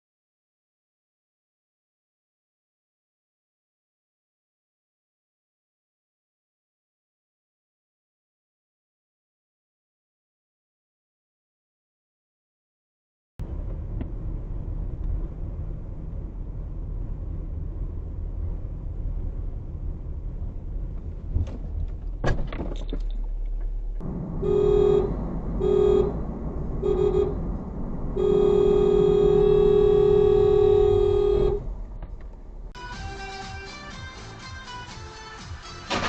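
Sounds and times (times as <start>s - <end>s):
car rumbling on the road: 13.4s - 33.4s
car horn toots: 24.3s - 26.2s, 26.8s - 27.5s, 28.1s - 31.7s.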